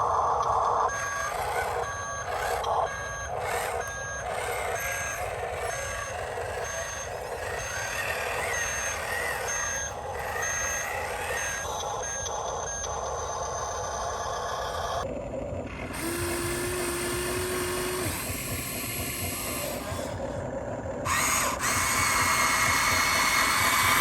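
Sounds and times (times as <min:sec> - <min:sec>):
small electric motors whirring: 0:00.0 - 0:24.0
electronic reversing beeper: 0:00.9 - 0:15.0, 0:16.0 - 0:20.4.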